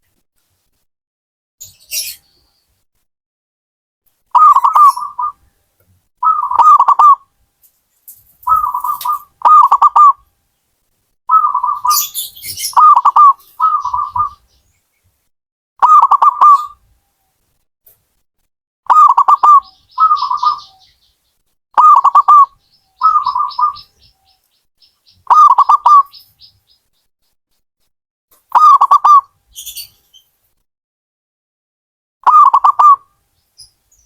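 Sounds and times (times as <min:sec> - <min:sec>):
dove cooing: 0:04.3 - 0:05.4, 0:06.2 - 0:07.2, 0:08.4 - 0:10.2, 0:11.3 - 0:14.4, 0:15.8 - 0:16.8, 0:18.9 - 0:20.9, 0:21.8 - 0:24.2, 0:25.3 - 0:26.2, 0:32.2 - 0:33.0.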